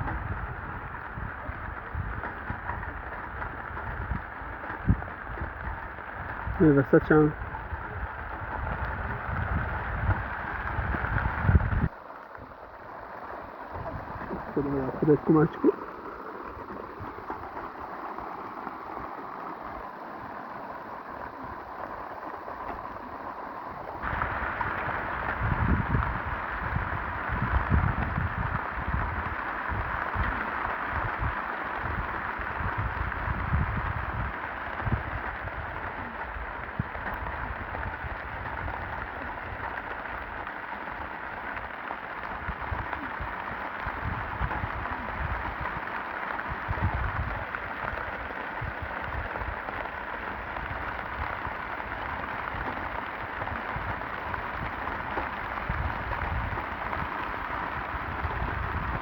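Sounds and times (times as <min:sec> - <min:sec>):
low rumbling: 0:00.0 - 0:40.5
steady rain falling: 0:00.0 - 0:59.0.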